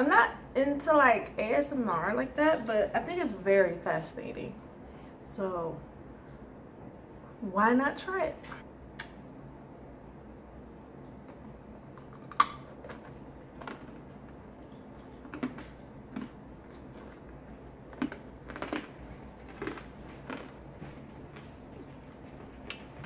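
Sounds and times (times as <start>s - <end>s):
crunching hard candy shell: 17.9s - 20.6s.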